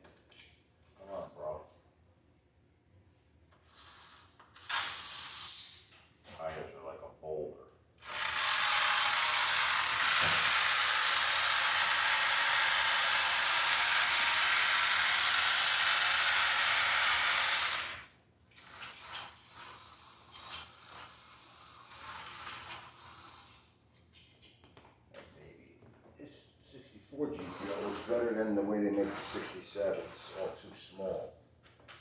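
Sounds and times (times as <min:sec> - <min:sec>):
loud hiss of spray: 0:03.8 - 0:05.9.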